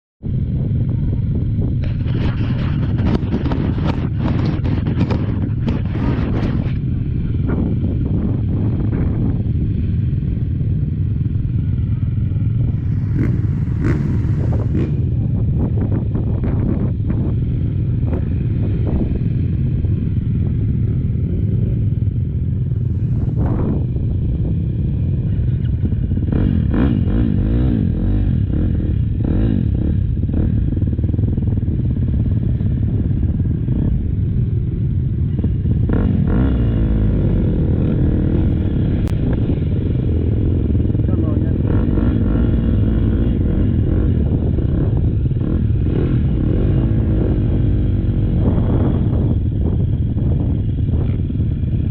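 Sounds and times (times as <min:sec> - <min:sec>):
motocross engine revving: 0:12.3 - 0:15.2.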